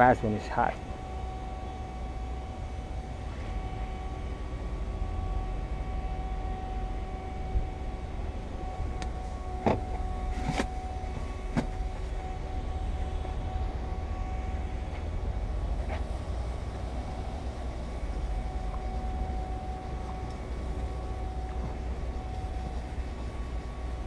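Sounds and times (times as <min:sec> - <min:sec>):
faint constant hum: 0:00.0 - 0:24.0.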